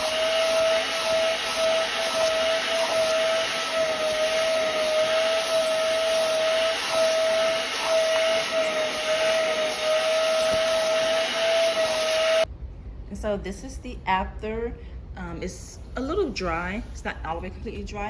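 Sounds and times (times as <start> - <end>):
rushing hiss of air and water: 0.0 - 12.5
spot cleaner suction motor whine: 0.0 - 12.5.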